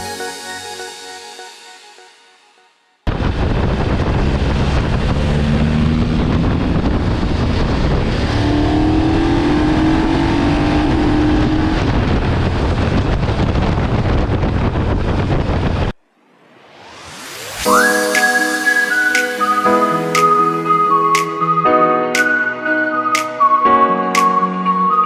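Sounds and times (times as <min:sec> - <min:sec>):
motorcycle engine accelerating: 0:03.1 - 0:15.9
wind rush on microphone: 0:03.1 - 0:16.0.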